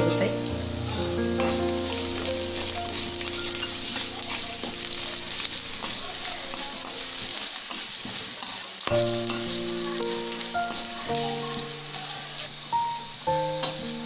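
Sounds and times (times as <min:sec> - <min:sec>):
onions sizzling in oil: 0:00.0 - 0:14.0
metal spoon scraping a pan: 0:01.4 - 0:12.6
spoon clicking on pan: 0:08.4 - 0:09.6.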